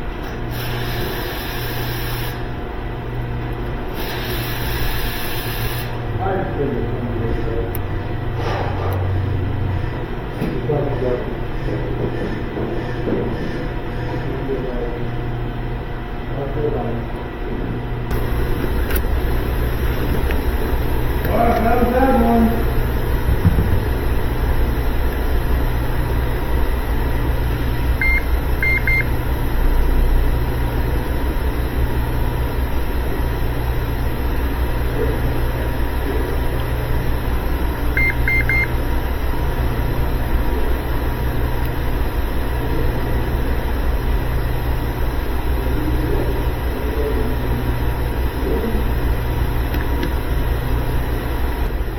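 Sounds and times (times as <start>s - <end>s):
short high electronic beeps: 38.0s - 38.7s.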